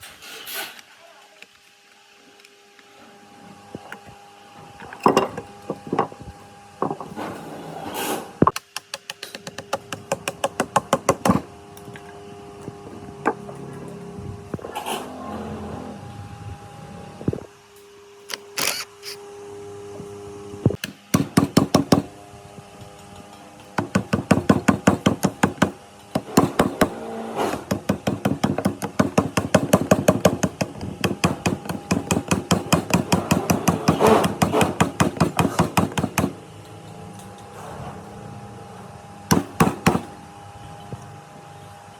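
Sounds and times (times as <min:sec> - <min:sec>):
rapid hammer strikes: 0:08.6 - 0:11.4, 0:20.8 - 0:22.1, 0:23.8 - 0:36.4, 0:39.3 - 0:40.1.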